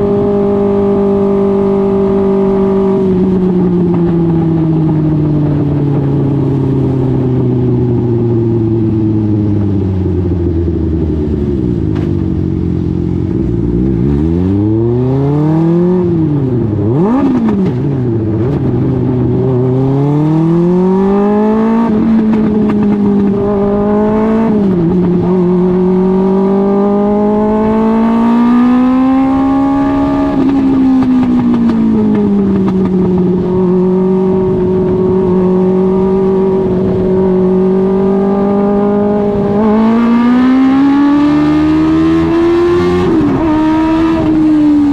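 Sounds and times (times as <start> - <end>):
racing engine revving: 13.4 - 44.9.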